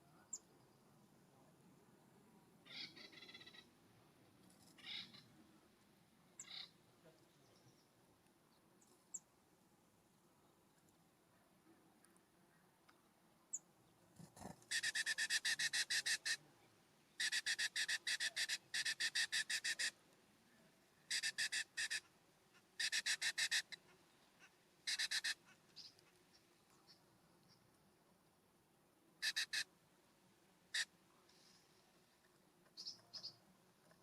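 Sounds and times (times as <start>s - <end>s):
bird harsh chattering calls: 2.6s - 3.7s, 4.8s - 5.3s, 14.6s - 16.4s, 17.2s - 20.0s, 21.1s - 22.1s, 22.8s - 23.8s, 24.4s - 25.9s, 29.2s - 29.7s.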